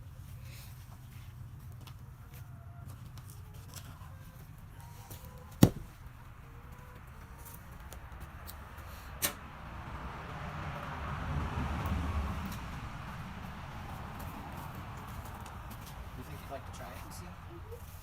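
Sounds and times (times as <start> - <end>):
sharp knocks: 5.6 - 5.9.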